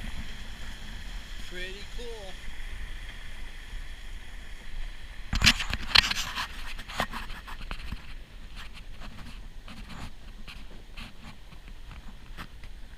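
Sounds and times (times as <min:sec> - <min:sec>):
rubbing and scraping: 0:05.3 - 0:12.6
camera handling scrapes and knocks: 0:05.3 - 0:12.7.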